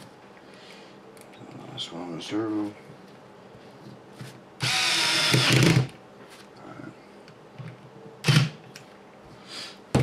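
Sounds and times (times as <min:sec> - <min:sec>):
electric screwdriver running: 0:04.6 - 0:05.9.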